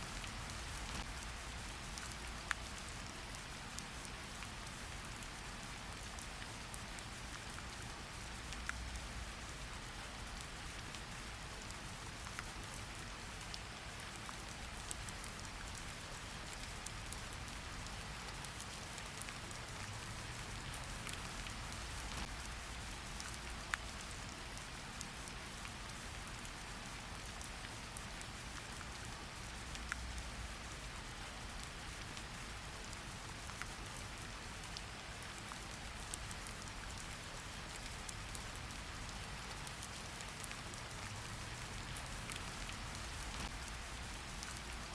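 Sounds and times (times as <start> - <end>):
steady rain hiss: 0.0 - 44.9.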